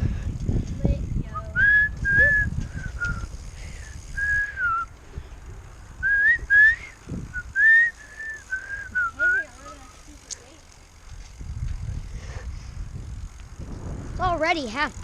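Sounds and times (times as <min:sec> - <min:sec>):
wind rumble on microphone: 0:00.0 - 0:09.2, 0:11.0 - 0:15.0
person whistling a tune: 0:01.4 - 0:03.2, 0:06.0 - 0:09.4.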